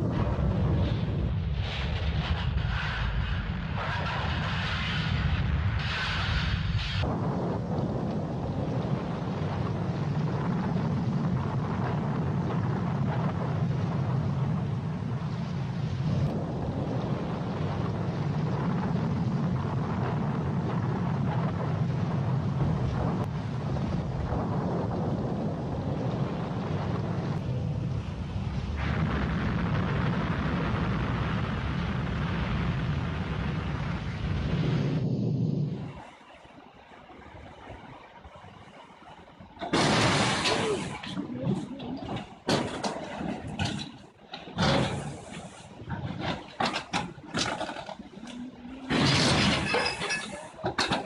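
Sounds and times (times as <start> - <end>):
rushing wind and water: 0.0 - 51.0
boat engine rumble: 6.8 - 51.0.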